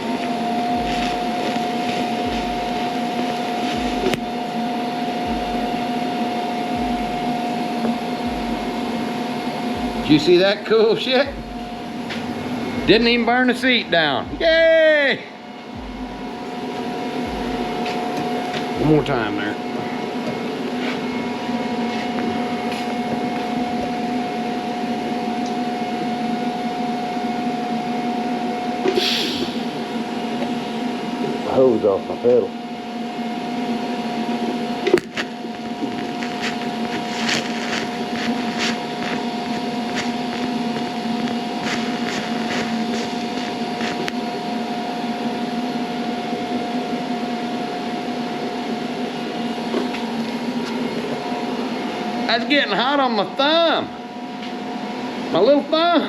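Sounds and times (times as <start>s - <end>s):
welding arc buzzing hum: 0.0s - 53.8s
brief hiss: 28.9s - 29.7s.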